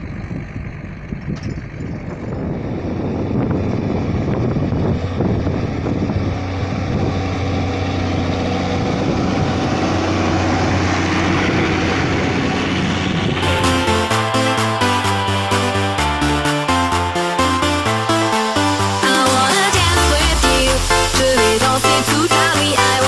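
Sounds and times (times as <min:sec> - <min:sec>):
tractor diesel engine under load: 0:00.0 - 0:23.0.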